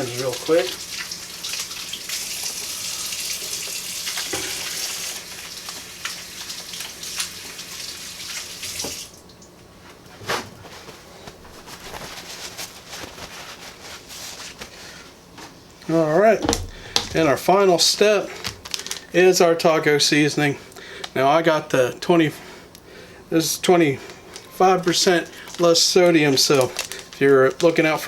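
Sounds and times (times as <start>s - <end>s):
faucet running over hands: 0.0s - 9.1s.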